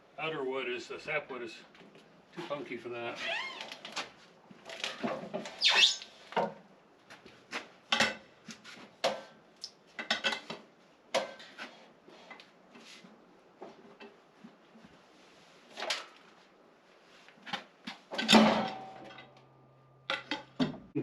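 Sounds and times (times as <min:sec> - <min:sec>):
metallic clanks and knocks: 0:18.2 - 0:19.4.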